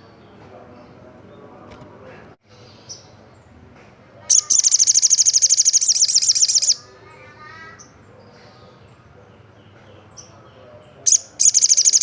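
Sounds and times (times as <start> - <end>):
soft bird chirps: 4.2 - 12.0
bird singing high-pitched trill: 4.3 - 6.9, 11.1 - 12.0.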